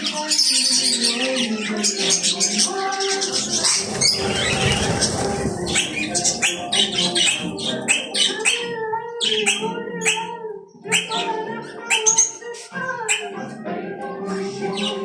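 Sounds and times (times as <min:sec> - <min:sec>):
budgerigars chattering: 0:00.1 - 0:10.3, 0:10.9 - 0:12.4
rustling noise: 0:03.4 - 0:07.6.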